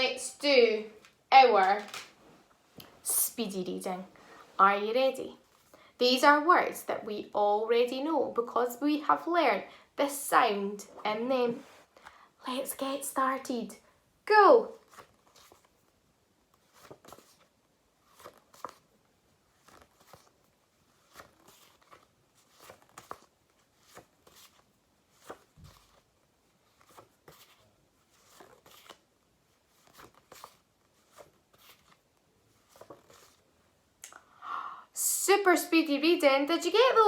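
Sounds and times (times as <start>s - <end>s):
cards being turned: 1.0s - 2.2s, 14.8s - 15.8s, 16.5s - 33.4s.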